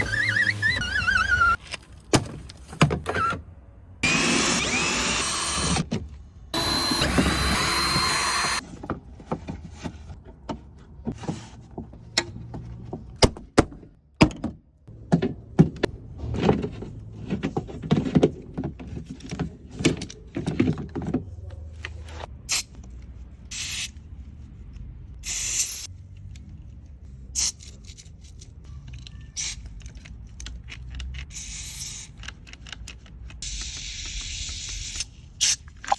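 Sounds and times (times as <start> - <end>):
electric window motor: 6.6 - 8.6.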